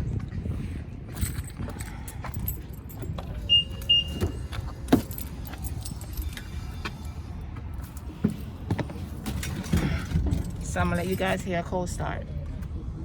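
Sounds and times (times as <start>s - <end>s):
short high electronic beeps: 3.4s - 4.4s.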